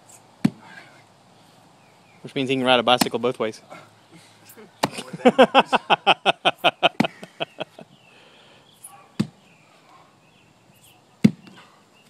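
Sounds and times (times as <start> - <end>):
person laughing: 4.9 - 8.0.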